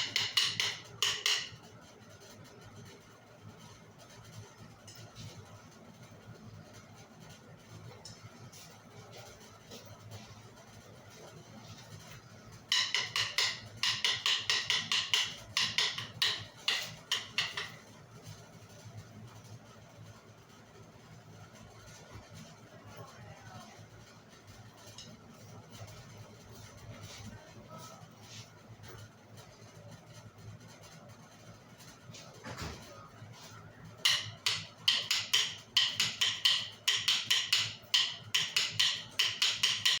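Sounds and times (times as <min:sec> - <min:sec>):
wooden sticks clacking: 0:00.0 - 0:01.6, 0:12.7 - 0:17.8, 0:34.0 - 0:40.0.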